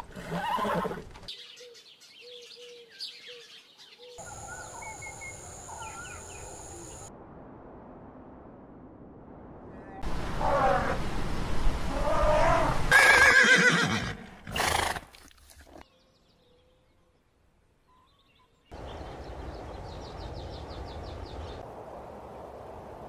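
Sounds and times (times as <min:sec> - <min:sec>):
horse whinnying: 0:00.0 - 0:01.1, 0:12.0 - 0:15.1.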